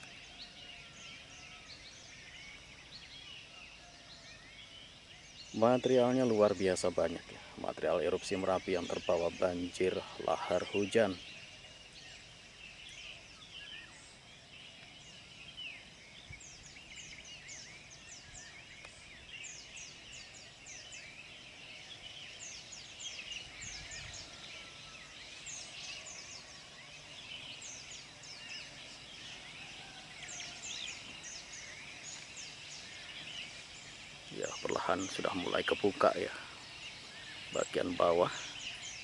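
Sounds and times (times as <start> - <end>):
songbirds rapid falling notes: 0.0 - 39.0.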